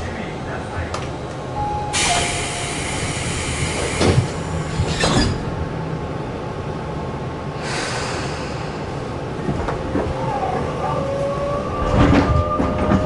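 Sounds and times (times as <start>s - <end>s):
train low rumble: 0.0s - 13.0s
air hiss: 1.9s - 4.7s, 7.6s - 8.9s.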